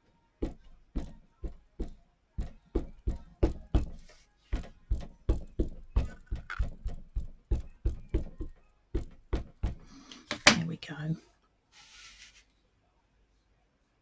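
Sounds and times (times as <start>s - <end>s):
stamp tapping on ink pad: 0.4s - 10.7s.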